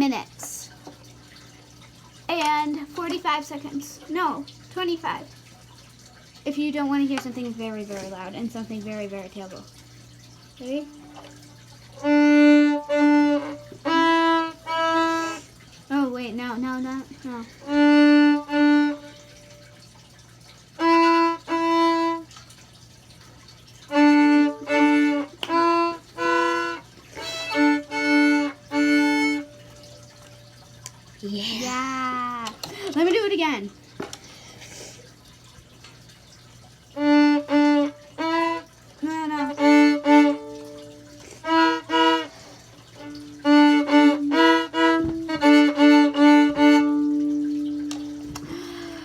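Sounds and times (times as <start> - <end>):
bowed viola notes: 12.0 - 15.5, 17.2 - 19.7, 20.8 - 22.3, 23.9 - 30.2, 37.0 - 49.0.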